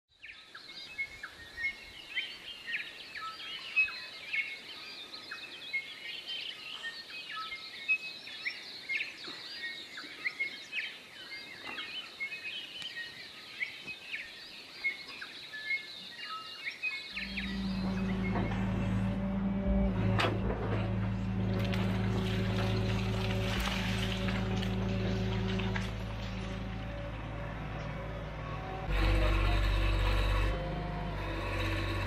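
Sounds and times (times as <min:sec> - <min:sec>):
many birds chirping and singing: 0:00.2 - 0:20.2.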